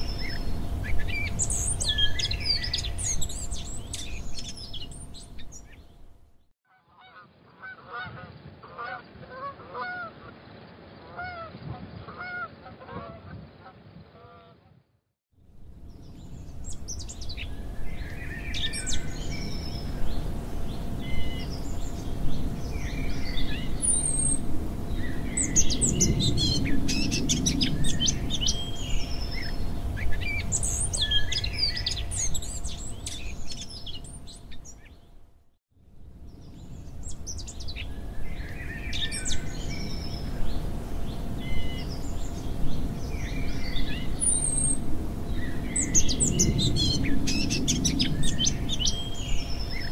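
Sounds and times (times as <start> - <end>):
birds chirping and calling: 0.0 - 6.0, 16.1 - 35.0, 41.4 - 49.9
low steady rumble: 0.0 - 6.5, 15.5 - 49.9.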